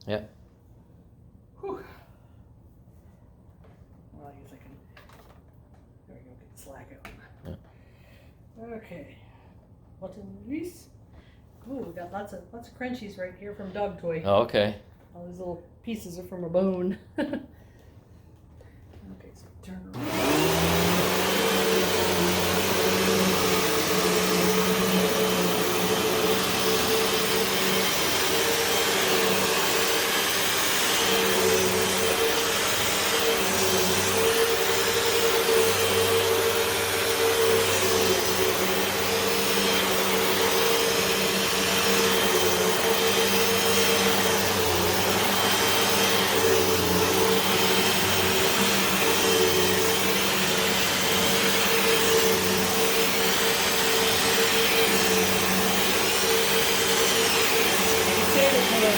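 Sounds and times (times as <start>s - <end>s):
upright vacuum running on carpet: 20.0s - 58.9s.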